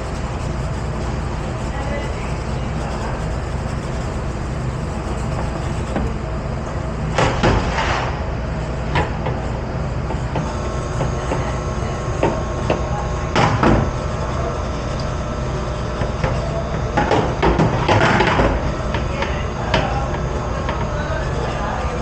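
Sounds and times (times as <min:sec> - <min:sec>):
low rumble of dishwashing machinery: 0:00.0 - 0:22.0.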